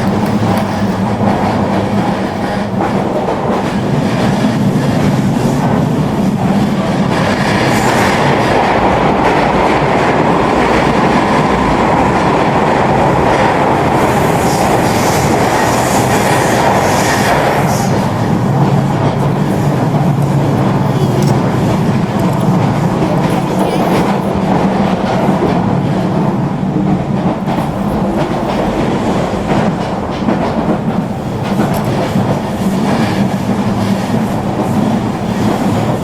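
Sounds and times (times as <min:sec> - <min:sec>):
toy train running on track: 0:00.0 - 0:12.3, 0:13.7 - 0:26.4.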